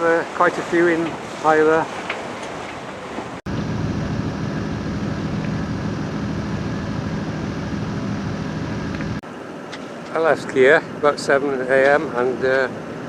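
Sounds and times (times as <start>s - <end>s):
boat engine running: 2.8s - 9.2s.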